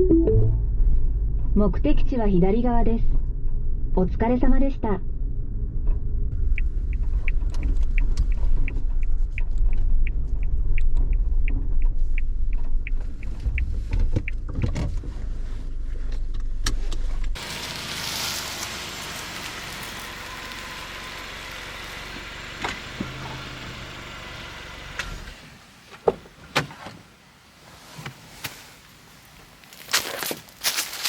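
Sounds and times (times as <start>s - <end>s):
car rumble inside cabin: 0.6s - 25.3s.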